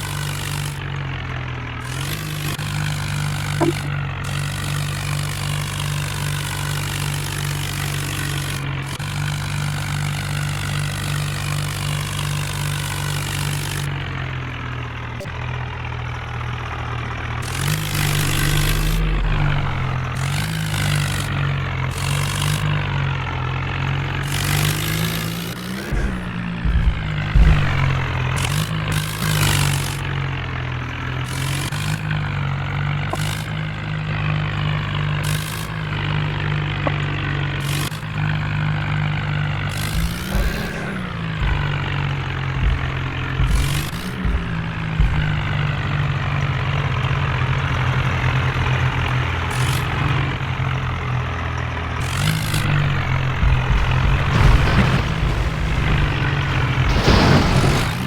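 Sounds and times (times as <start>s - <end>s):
tractor engine running: 0.0s - 58.0s
short bursts of noise: 1.9s - 9.6s.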